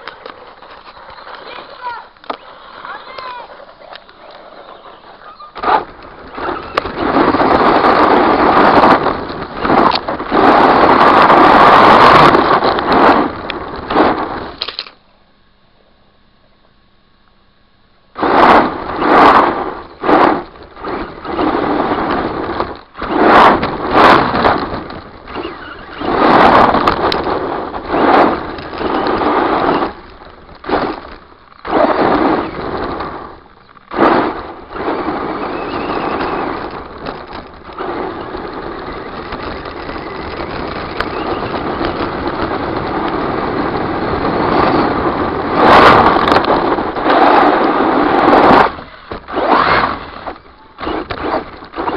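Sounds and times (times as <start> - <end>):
rc truck electric motor whining: 18.3 - 33.4.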